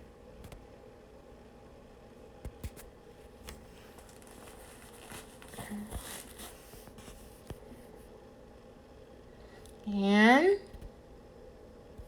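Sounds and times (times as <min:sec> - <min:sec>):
hair rustling: 0:03.6 - 0:07.4.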